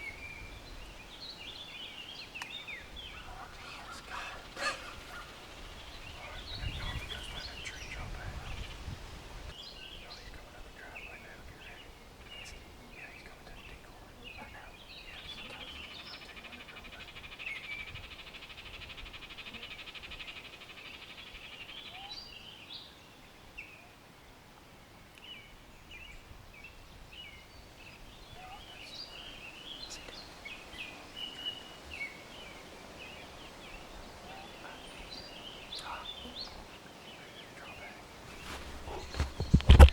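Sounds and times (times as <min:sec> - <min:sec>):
low wind rumble: 0:00.0 - 0:20.3, 0:24.3 - 0:39.9
songbirds chirping: 0:00.0 - 0:39.9.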